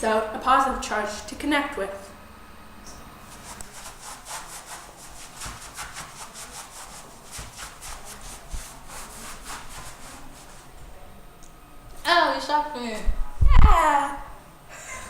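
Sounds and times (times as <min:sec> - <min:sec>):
rhythmic rubbing or scraping: 0:03.2 - 0:10.8.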